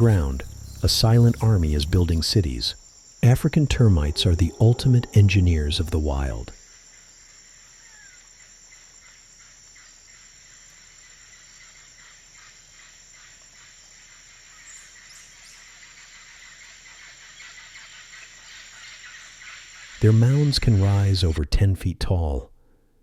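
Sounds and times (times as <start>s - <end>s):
bird chirps: 0.0s - 6.2s
insect chirring: 0.0s - 21.2s.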